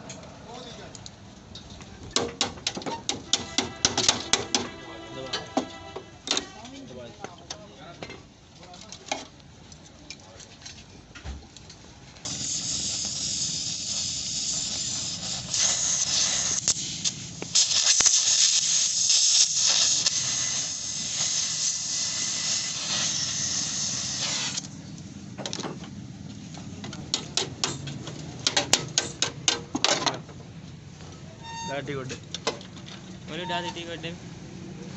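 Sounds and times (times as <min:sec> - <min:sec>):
loud compressed air hiss: 0:02.9 - 0:04.7, 0:12.2 - 0:24.8.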